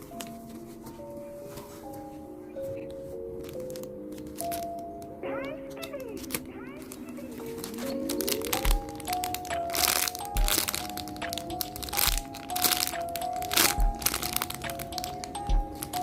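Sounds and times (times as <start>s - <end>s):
plastic packaging crinkling: 2.7s - 16.0s
background music with low beat: 7.2s - 16.0s.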